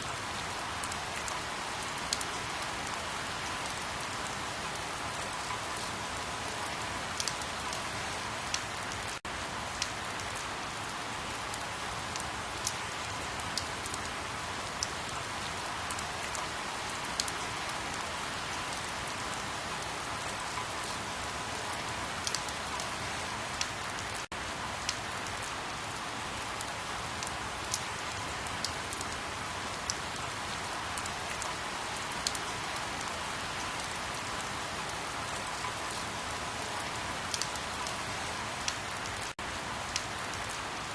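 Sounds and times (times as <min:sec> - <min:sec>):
steady rain falling: 0:00.0 - 0:40.9
raindrops ticking: 0:06.7 - 0:07.8, 0:37.2 - 0:38.0.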